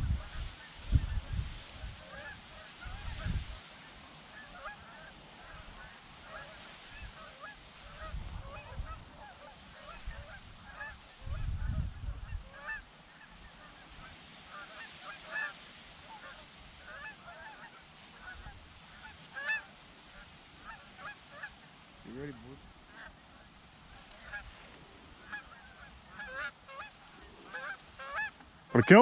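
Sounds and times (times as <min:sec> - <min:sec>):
wind buffeting microphone: 0:00.0 - 0:02.1, 0:02.8 - 0:03.6, 0:07.8 - 0:09.2, 0:09.9 - 0:12.6
geese honking: 0:00.0 - 0:29.0.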